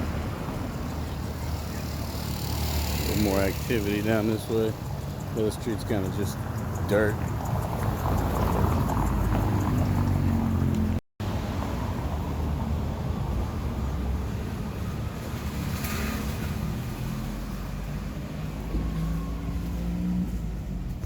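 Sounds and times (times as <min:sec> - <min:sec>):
wind on microphone: 0:06.4 - 0:11.0.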